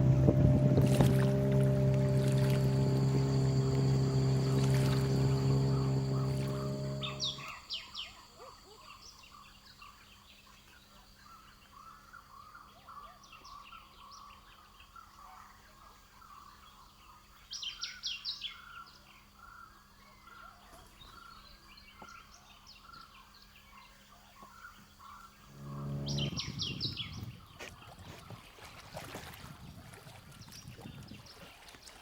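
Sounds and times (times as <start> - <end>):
birds chirping: 0.0 - 8.2, 25.4 - 28.0.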